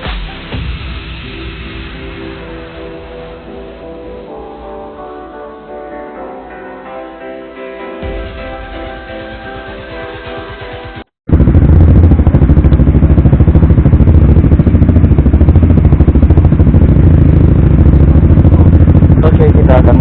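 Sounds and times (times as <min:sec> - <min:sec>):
motorcycle engine idling: 0:11.3 - 0:20.0.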